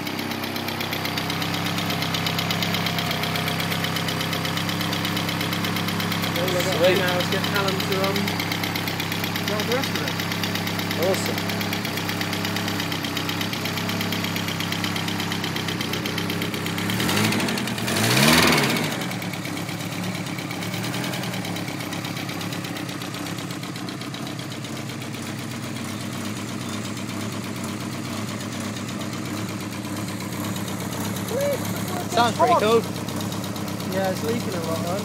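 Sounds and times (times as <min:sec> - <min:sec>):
turbocharged car engine idling and revving: 0:00.0 - 0:35.0.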